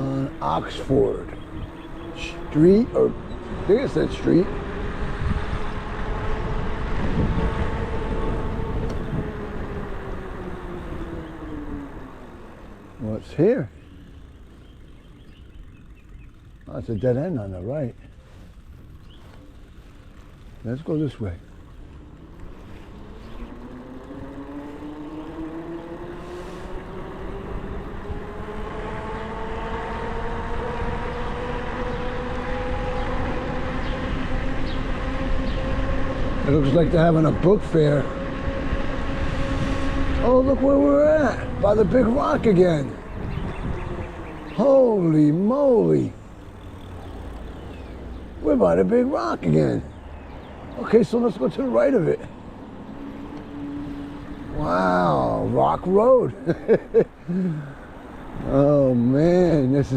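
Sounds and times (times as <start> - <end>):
electric bike motor whining: 0.0 - 59.9
wind on microphone: 4.7 - 11.8, 26.2 - 44.5.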